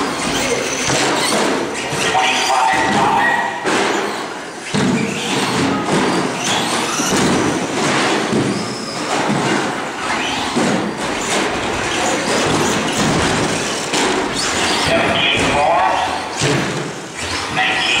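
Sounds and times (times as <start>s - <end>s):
short knocks and thuds: 2.7s - 9.8s, 10.4s - 17.0s.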